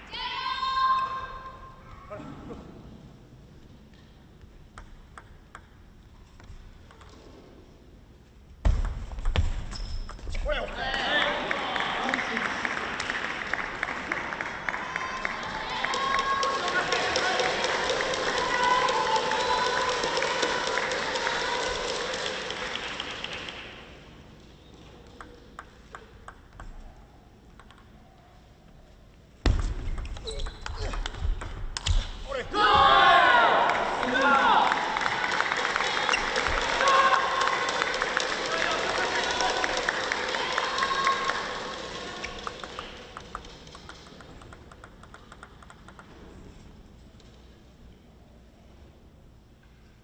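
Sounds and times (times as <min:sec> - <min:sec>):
table tennis ball clicks: 0:25.0 - 0:26.7, 0:27.5 - 0:27.9, 0:42.4 - 0:46.2.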